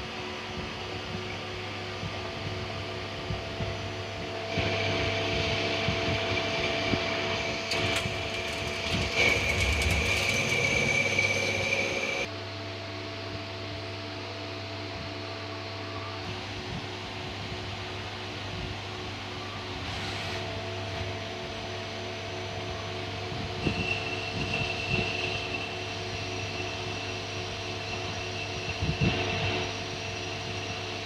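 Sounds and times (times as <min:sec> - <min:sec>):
machining noise with high whine: 0:00.0 - 0:13.0, 0:15.4 - 0:31.0
lathe humming: 0:05.7 - 0:12.3.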